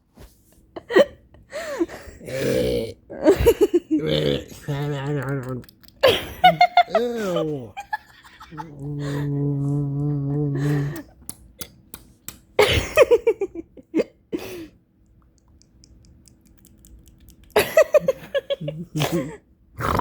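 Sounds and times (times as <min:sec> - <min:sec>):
person making lip noises: 0:04.0 - 0:06.0, 0:08.6 - 0:11.8, 0:15.3 - 0:17.6, 0:18.6 - 0:20.0
person humming: 0:08.5 - 0:11.2
mouth clicks: 0:15.2 - 0:17.6.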